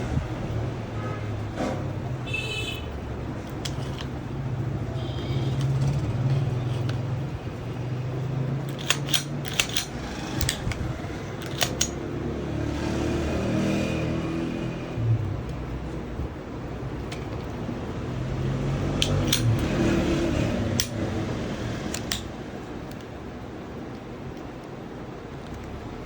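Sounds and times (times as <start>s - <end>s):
pistol clicks: 8.7s - 10.8s, 11.4s - 12.0s, 19.0s - 19.6s, 20.8s - 21.0s, 21.9s - 23.1s.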